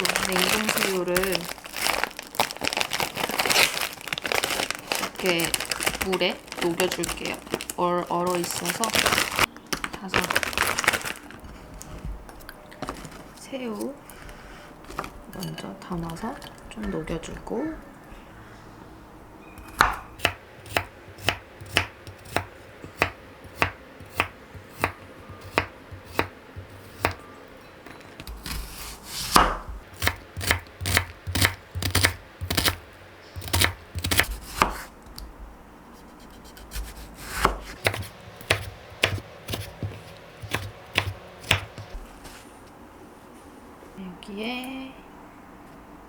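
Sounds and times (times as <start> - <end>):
knife chopping on cutting board: 19.8 - 27.2, 33.4 - 34.9, 36.6 - 41.9.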